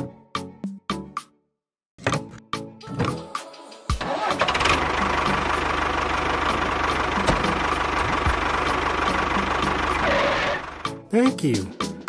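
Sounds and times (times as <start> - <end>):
small engine running steadily: 4.4 - 11.0.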